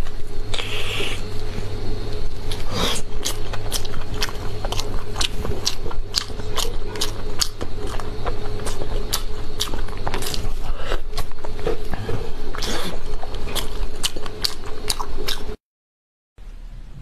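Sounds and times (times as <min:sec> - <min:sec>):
steady low hum: 0:00.0 - 0:15.6, 0:16.4 - 0:17.0
wet chewing and biting: 0:02.2 - 0:15.6.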